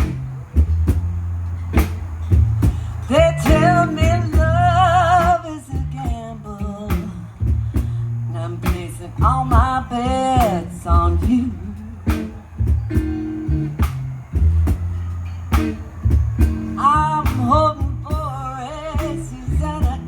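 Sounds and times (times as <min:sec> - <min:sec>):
bass line: 0:00.0 - 0:20.0
blues band playing: 0:00.0 - 0:20.0
drum hits: 0:12.1 - 0:18.4.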